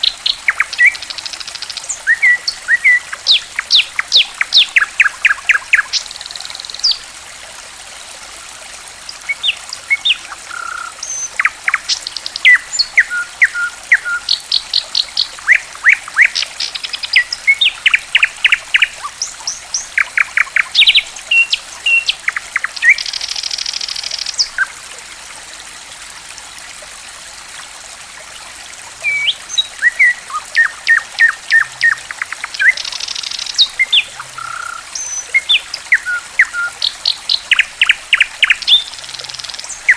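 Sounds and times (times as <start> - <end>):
trickle of running water: 0.0 - 39.9
songbirds chirping: 29.0 - 39.9.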